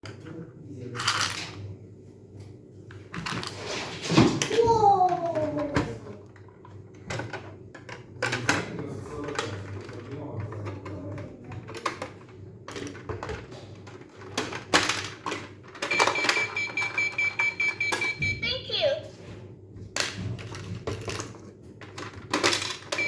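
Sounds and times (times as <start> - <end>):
high electronic toy beeps: 15.9 - 18.9
plastic toy pieces clicking: 21.9 - 23.0.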